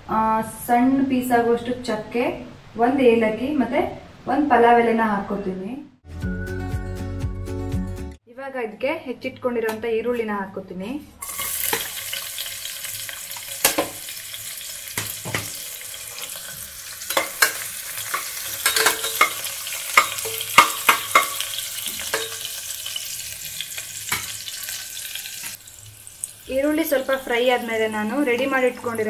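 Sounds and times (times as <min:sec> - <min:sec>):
spoon clinking and scraping pot: 0:11.2 - 0:12.2, 0:14.9 - 0:25.6
onions sizzling in oil: 0:11.2 - 0:29.0.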